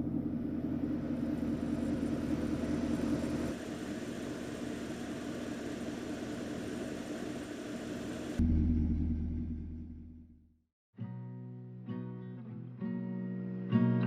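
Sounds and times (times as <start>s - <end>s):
steady low rumbling: 0.0s - 3.6s, 8.3s - 10.3s.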